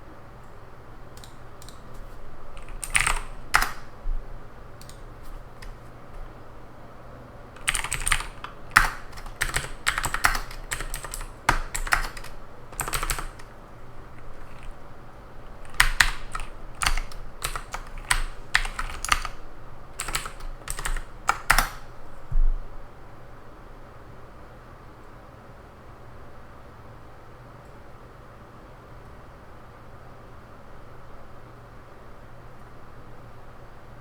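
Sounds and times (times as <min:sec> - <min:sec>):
computer keyboard typing: 0:01.1 - 0:04.0, 0:04.8 - 0:06.3, 0:07.5 - 0:22.0
soft low thump: 0:22.3 - 0:22.7.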